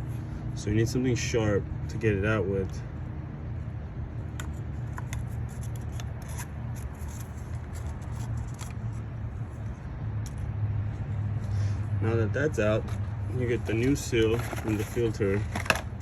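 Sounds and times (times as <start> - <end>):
steady low hum: 0.0 - 16.0
pick clicking and scraping: 4.3 - 9.0.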